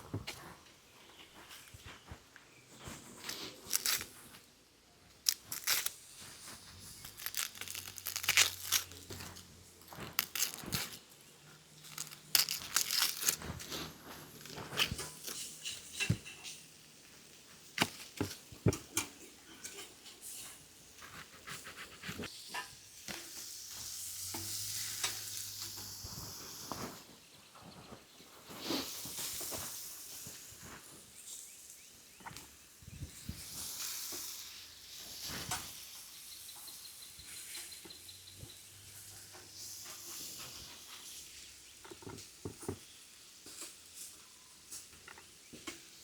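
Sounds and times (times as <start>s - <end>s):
packaging crinkling and tearing: 3.2s - 4.5s, 5.1s - 16.2s.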